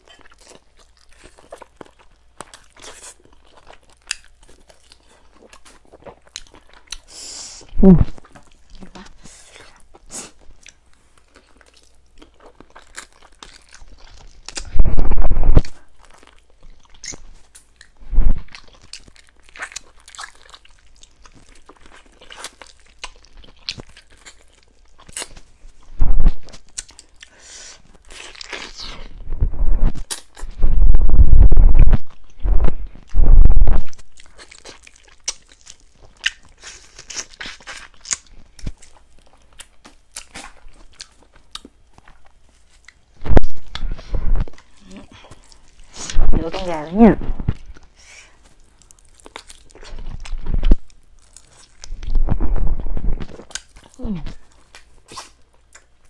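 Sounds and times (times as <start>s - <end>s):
chewing and crunching: 0.0s - 7.2s, 8.0s - 15.0s, 15.6s - 29.3s, 33.8s - 56.0s
heavy low thumps: 14.7s - 15.7s, 26.0s - 26.4s, 29.2s - 30.0s, 30.6s - 34.0s.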